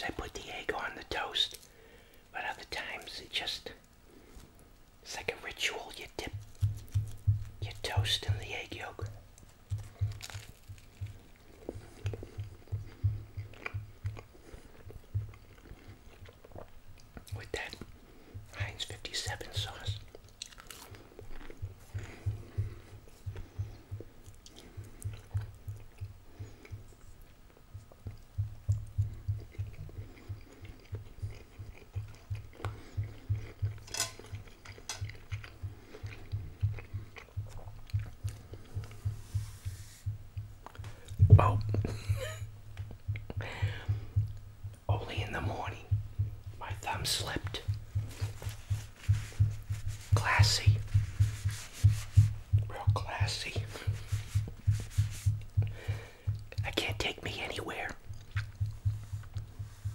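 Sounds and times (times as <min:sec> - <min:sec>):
chewing toast with crunches: 0:05.6 - 0:17.9, 0:19.2 - 0:39.2, 0:57.7 - 0:59.7
fork clicking against plate: 0:33.9 - 0:35.2.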